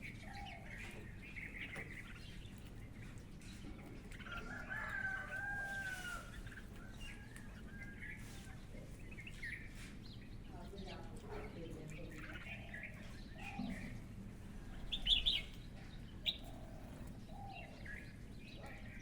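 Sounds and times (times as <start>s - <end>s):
small birds chirping: 0.0s - 19.0s
rooster crowing: 4.3s - 8.0s.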